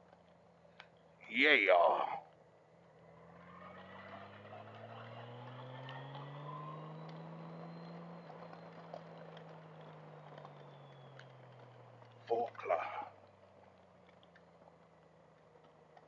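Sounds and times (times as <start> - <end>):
motorcycle engine accelerating: 0.0 - 16.0
road and wind noise: 0.0 - 16.0.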